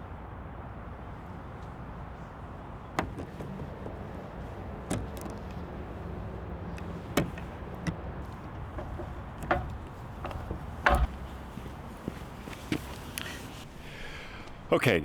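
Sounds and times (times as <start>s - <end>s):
sharp clunks: 3.0s - 14.7s.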